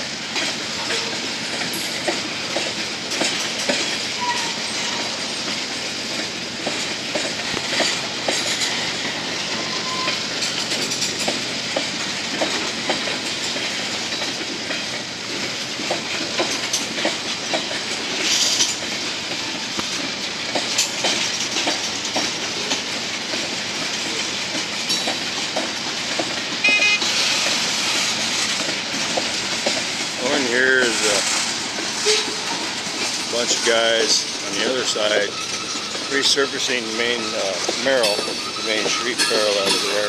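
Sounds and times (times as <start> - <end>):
train wheels clicking over rail joints: 0.0 - 40.0
high squeal: 8.7 - 10.7, 34.6 - 37.3.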